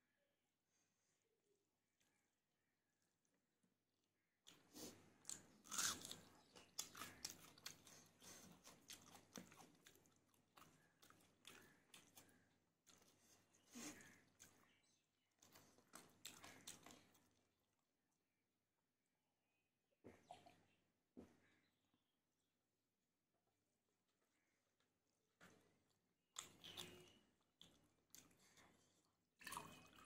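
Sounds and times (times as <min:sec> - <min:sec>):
crunchy food chewing: 0:04.4 - 0:17.8, 0:26.3 - 0:30.0.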